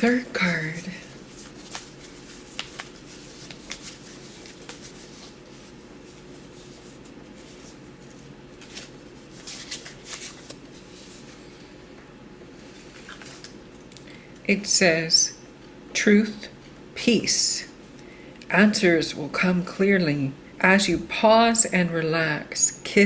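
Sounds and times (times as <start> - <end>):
low room hum: 0.0 - 23.0
cards shuffling and flicking: 1.4 - 5.3, 7.4 - 11.3.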